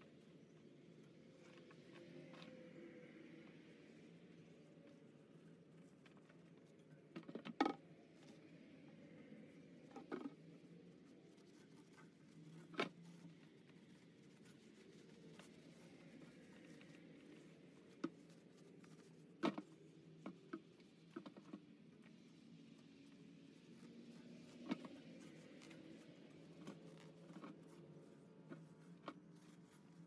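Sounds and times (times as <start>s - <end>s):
faint scratching and handling: 4.5s - 30.0s.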